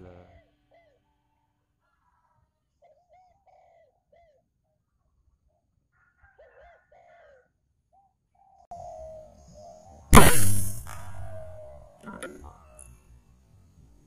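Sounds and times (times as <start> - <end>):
bird calling: 8.7 - 12.9
louder steady sound: 10.2 - 11.6.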